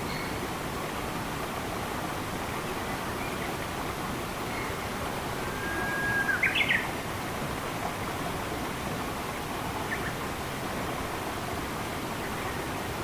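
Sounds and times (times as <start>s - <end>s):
running water rushing: 0.0s - 13.0s
songbird calling: 4.5s - 6.9s.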